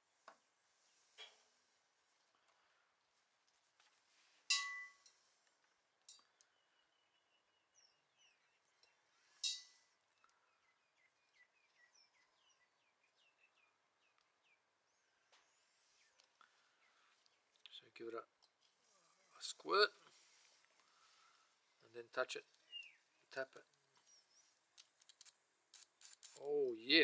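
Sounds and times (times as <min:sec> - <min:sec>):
short sharp ringing sounds: 0:04.5 - 0:05.1.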